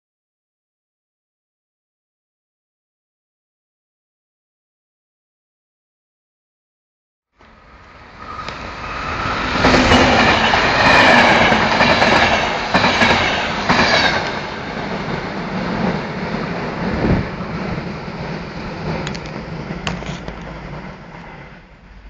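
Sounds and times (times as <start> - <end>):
train passing: 7.4 - 22.0
wheels squealing against rails: 7.6 - 14.5.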